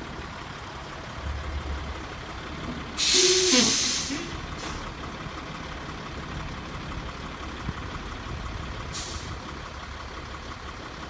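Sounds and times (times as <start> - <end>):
truck running: 0.0 - 11.0
brake squeal: 3.0 - 4.9
truck air brakes hissing: 3.0 - 5.0, 8.9 - 9.4.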